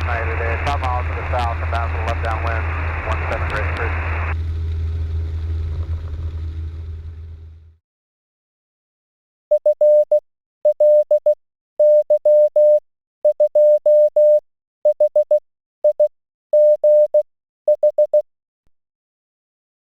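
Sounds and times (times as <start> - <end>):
morse code tone pulses: 9.5 - 18.2.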